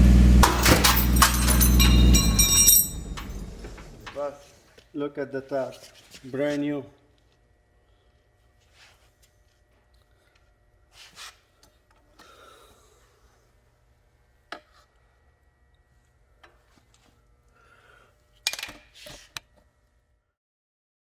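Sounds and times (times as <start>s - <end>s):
loud clatter: 0.4s - 4.2s
soft handling rubs: 5.5s - 6.8s.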